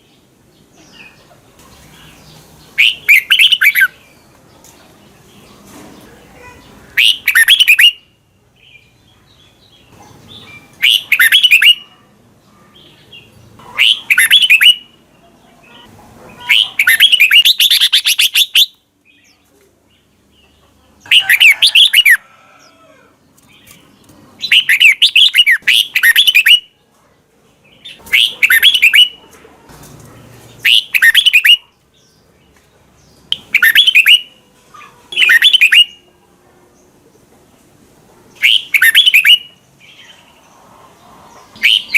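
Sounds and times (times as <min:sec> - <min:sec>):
bulbul singing: 0:02.0 - 0:04.2, 0:06.5 - 0:12.0, 0:13.0 - 0:20.4, 0:23.4 - 0:26.8, 0:27.7 - 0:29.2, 0:30.6 - 0:32.2, 0:33.0 - 0:34.4, 0:35.1 - 0:36.2, 0:38.4 - 0:40.1, 0:41.6 - 0:41.9.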